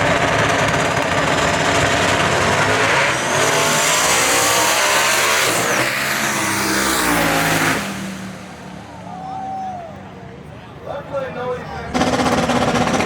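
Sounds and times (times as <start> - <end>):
drag cars accelerating: 0.0 - 9.2, 11.9 - 13.0.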